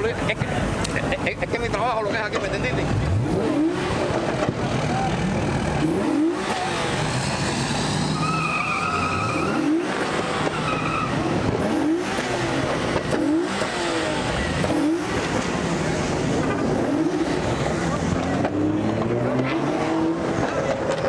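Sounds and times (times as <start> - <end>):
car engine revving: 0.0 - 21.0
high tyre squeal: 2.8 - 18.2
spinning tyres hissing: 2.8 - 18.4.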